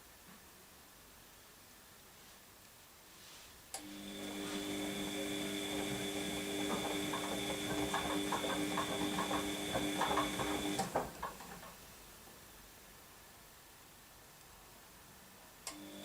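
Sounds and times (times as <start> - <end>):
washing machine motor humming: 3.8 - 11.8
drum load sloshing and clatter: 4.6 - 11.9.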